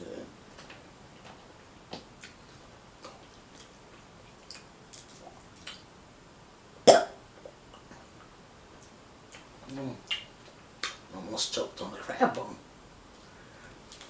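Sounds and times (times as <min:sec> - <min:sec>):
wet squishing chewing: 0:03.0 - 0:05.8.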